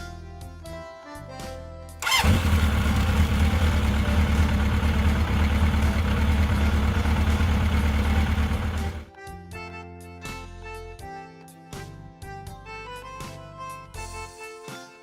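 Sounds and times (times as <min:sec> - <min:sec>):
vehicle engine starting: 0:02.0 - 0:09.1
engine deep throbbing rumble: 0:02.1 - 0:09.1.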